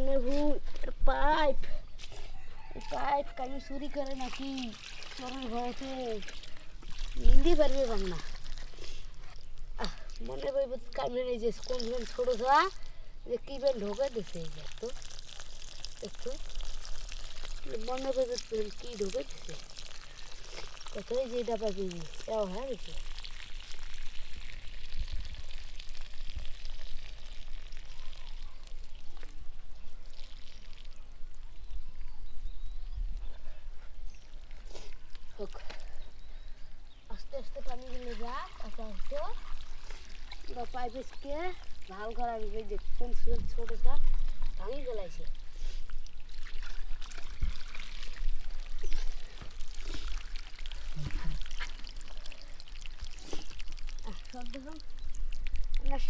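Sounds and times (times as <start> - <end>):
water pouring from pipe: 2.0 - 32.3, 33.7 - 56.0
person speaking: 2.8 - 6.4, 7.1 - 8.4, 9.8 - 15.0, 16.0 - 16.5, 17.6 - 19.7, 20.9 - 23.0.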